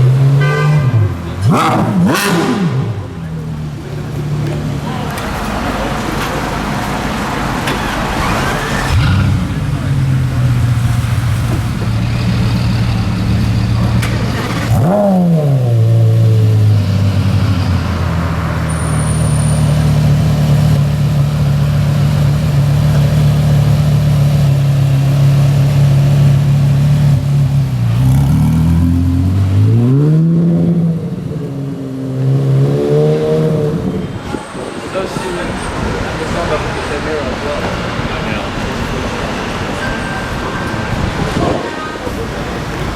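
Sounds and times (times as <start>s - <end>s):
sports car engine revving: 0.0s - 34.3s.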